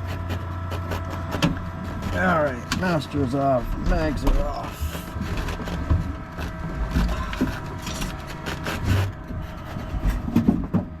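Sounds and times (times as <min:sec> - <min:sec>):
knocks and clicks of handling: 0:03.7 - 0:11.0.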